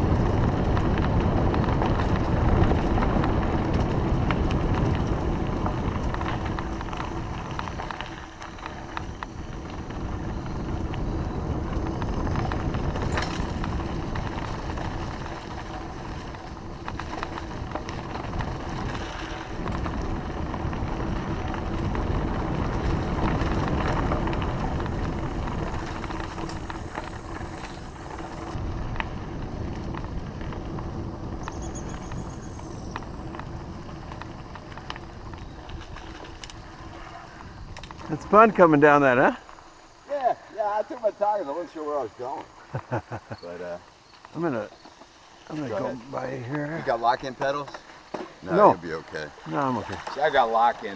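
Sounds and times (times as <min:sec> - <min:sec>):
wind rushing over microphone: 0:00.0 - 0:40.1
bike clicks and rattles: 0:00.0 - 0:41.6, 0:43.8 - 0:50.9
tyres rumbling on road: 0:00.0 - 0:50.9.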